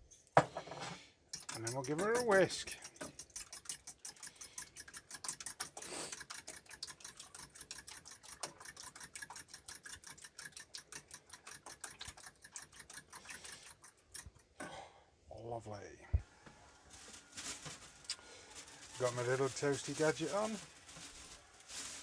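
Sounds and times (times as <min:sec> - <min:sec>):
eggs whisked in a bowl: 0:01.2 - 0:14.6, 0:18.9 - 0:20.6.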